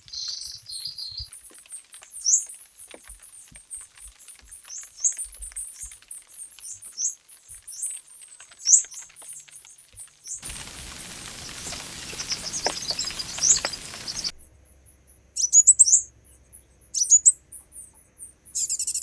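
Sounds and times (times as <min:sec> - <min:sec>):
birds chirping: 0:10.4 - 0:14.3
high twittering: 0:10.4 - 0:14.3
rain patter: 0:10.4 - 0:14.3.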